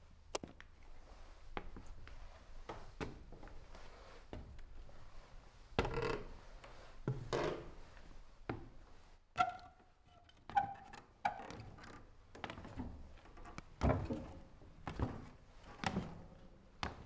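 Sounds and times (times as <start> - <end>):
squeaky creaks: 9.4 - 12.0.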